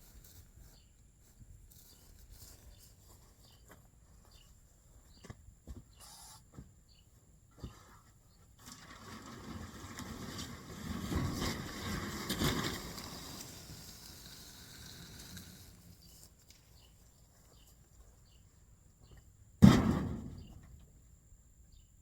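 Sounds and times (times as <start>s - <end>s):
sharp loud bang: 19.6s - 20.5s.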